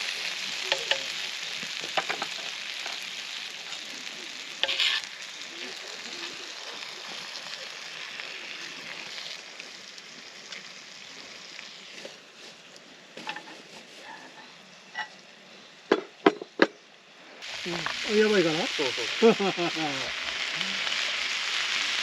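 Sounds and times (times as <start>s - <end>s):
food sizzling in a pan: 0.0s - 16.3s, 17.1s - 22.0s.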